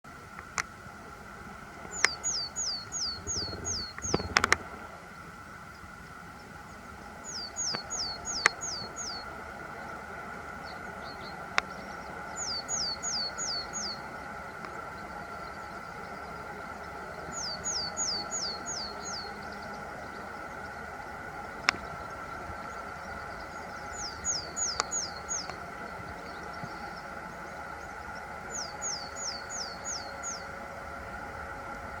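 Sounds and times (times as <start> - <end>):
steady background hum: 0.0 - 32.0
willow tit calling: 1.8 - 4.8, 5.7 - 9.3, 10.6 - 16.2, 16.8 - 20.6, 21.6 - 27.5, 28.1 - 30.5.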